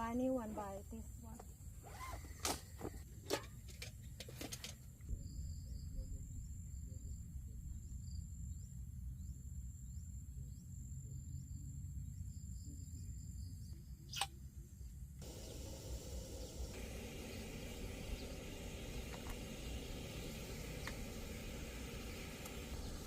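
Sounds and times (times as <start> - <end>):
insects trilling: 15.2 - 23.0.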